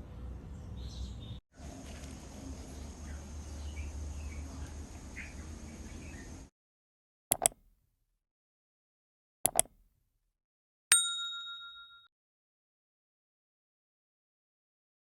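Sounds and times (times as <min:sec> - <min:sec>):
bird calls: 0:02.7 - 0:06.4
sharp ding: 0:10.9 - 0:12.1.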